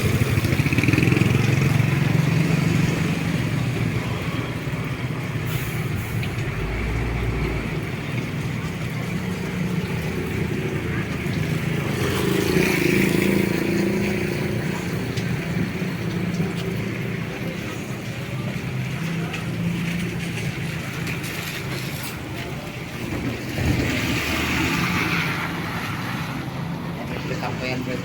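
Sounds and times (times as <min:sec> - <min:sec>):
car engine and road noise: 0:00.0 - 0:28.0
rain hissing: 0:00.1 - 0:20.2.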